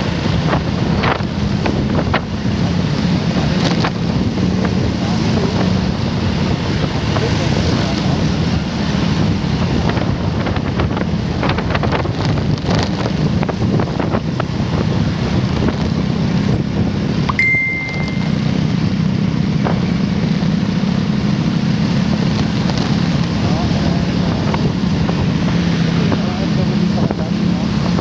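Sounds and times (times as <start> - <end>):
wind on microphone: 0.0 - 20.6, 21.6 - 28.0
motorcycle engine running: 0.0 - 28.0
short high-pitched beep: 17.3 - 18.6.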